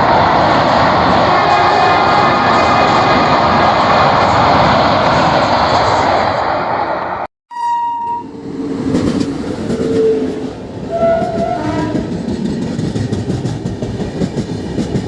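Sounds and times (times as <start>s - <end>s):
train rumbling by: 0.0s - 7.3s, 8.0s - 15.0s
high train horn blast: 1.2s - 2.5s, 9.7s - 12.2s.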